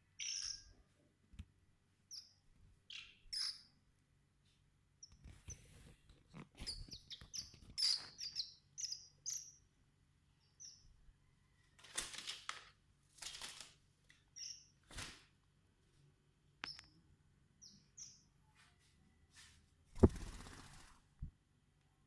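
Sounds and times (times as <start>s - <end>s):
bird chirping: 0.0s - 0.9s, 2.1s - 3.8s, 6.6s - 9.7s, 10.4s - 11.0s, 14.3s - 14.8s, 17.6s - 18.4s.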